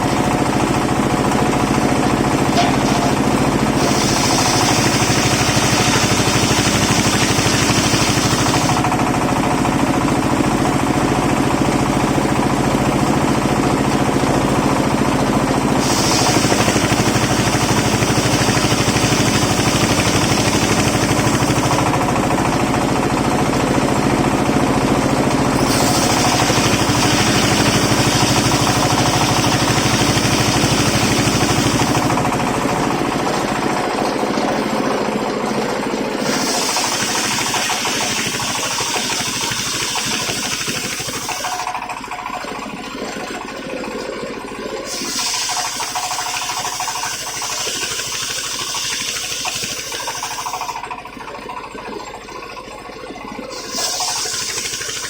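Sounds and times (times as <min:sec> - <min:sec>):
sawmill engine drone: 0:00.0 - 0:55.0
saw blade whine in wood: 0:02.0 - 0:08.9, 0:15.7 - 0:22.1, 0:25.5 - 0:33.1, 0:36.2 - 0:41.8, 0:44.9 - 0:50.9, 0:53.5 - 0:55.0.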